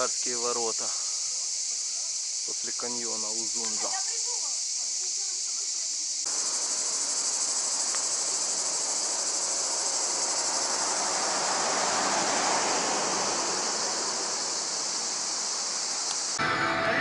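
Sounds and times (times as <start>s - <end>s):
high-pitched insect chorus: 0.0s - 17.0s
rushing noise: 6.3s - 17.0s.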